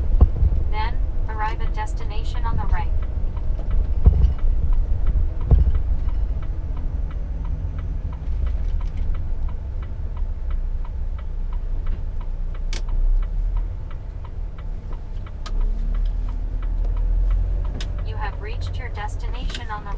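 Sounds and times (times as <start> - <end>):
engine low rumble: 0.0 - 19.9
turn signal ticking: 0.0 - 19.9
thump: 5.4 - 5.8.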